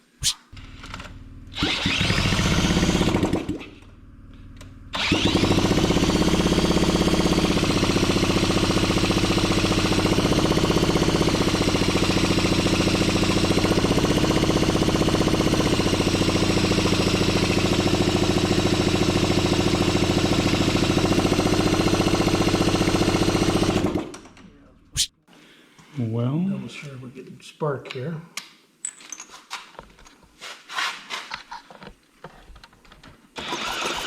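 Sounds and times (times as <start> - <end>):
engine turning over: 0.6 - 24.4, 33.4 - 34.0
electric drill whining: 0.8 - 3.6, 4.9 - 20.3.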